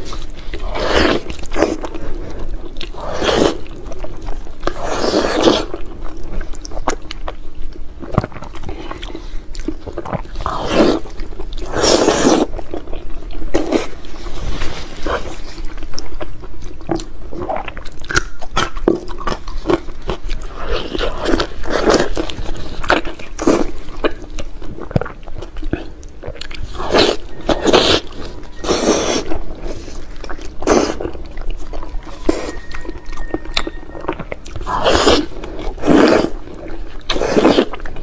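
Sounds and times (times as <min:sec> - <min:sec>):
biting and wet chewing: 0:00.0 - 0:38.0.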